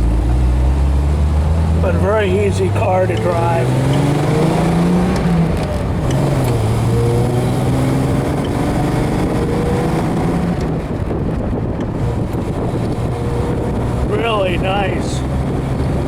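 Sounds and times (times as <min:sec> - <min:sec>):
car engine running: 0:00.0 - 0:16.0
wind and road noise: 0:00.0 - 0:16.0.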